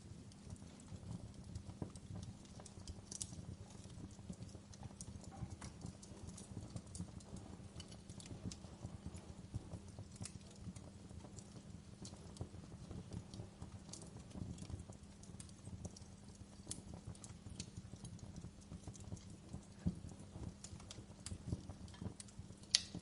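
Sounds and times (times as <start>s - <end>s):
fire popping and snapping: 0.0s - 23.0s
low rumble of burning fire: 0.0s - 23.0s
wood fire crackling: 0.0s - 23.0s.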